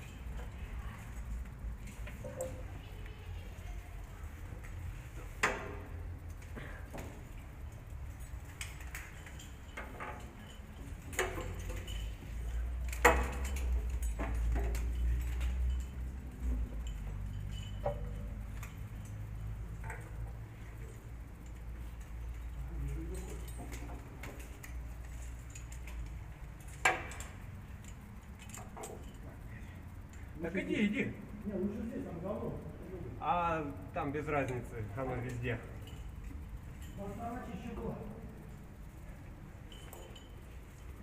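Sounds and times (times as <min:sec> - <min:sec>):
sharp clicks and knocks: 0:04.6 - 0:07.4, 0:08.1 - 0:22.5, 0:23.1 - 0:29.4.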